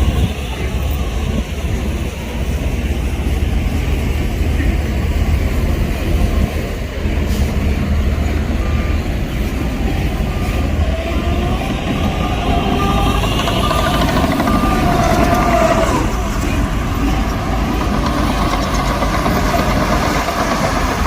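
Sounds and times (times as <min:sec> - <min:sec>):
heavy diesel machine running: 0:00.0 - 0:21.0
reversing alarm beeps: 0:07.9 - 0:16.7
rising mechanical whine: 0:08.5 - 0:19.1.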